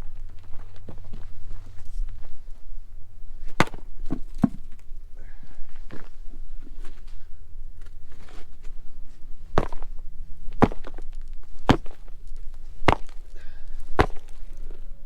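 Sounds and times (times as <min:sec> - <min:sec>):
low steady rumble: 0:00.0 - 0:15.0
sharp knocks: 0:14.0 - 0:14.3.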